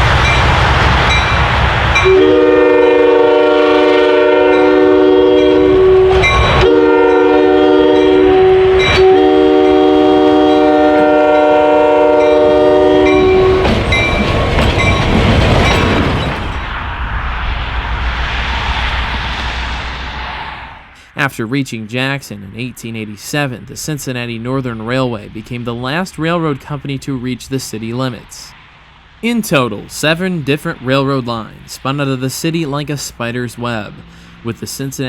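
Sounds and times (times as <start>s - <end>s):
train rumble: 0.0s - 35.0s
locomotive air horn blasts: 2.0s - 14.0s.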